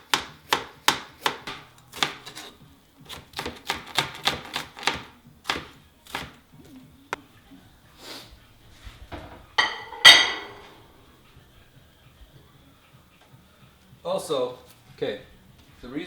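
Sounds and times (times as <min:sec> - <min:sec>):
knife chopping on cutting board: 0:00.0 - 0:06.4.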